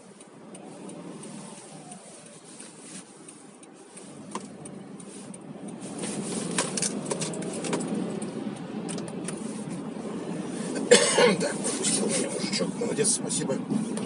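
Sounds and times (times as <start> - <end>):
car engine: 0.0 - 14.0
road noise: 0.0 - 14.0
light clicks and rattles: 2.6 - 9.9.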